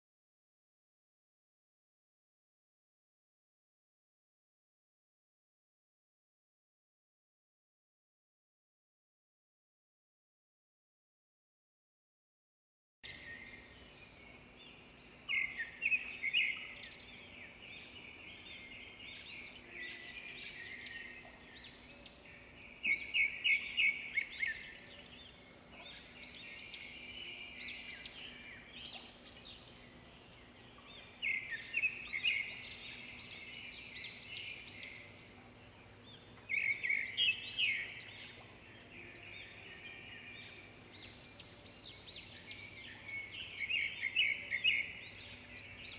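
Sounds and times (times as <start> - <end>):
birds chirping: 13.1 - 45.9.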